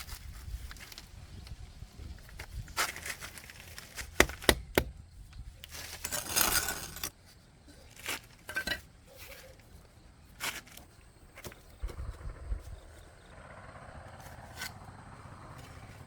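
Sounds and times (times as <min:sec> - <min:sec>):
rasping tearing noise: 0:05.6 - 0:07.2
objects clinking and knocking: 0:08.5 - 0:08.9.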